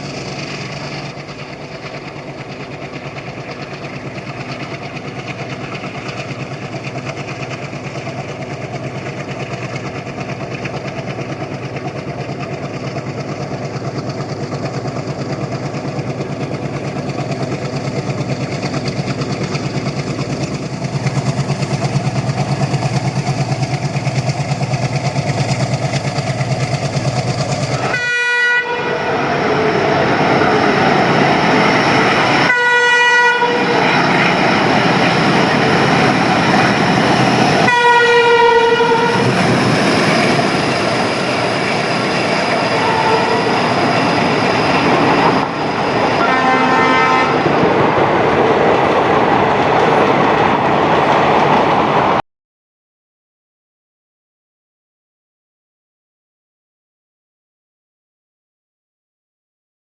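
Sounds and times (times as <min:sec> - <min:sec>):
diesel locomotive engine chugging: 0:00.0 - 0:52.2
multi-tone horn blasts: 0:27.8 - 0:29.9, 0:32.4 - 0:33.8, 0:37.6 - 0:39.4, 0:42.7 - 0:43.6, 0:46.2 - 0:47.5.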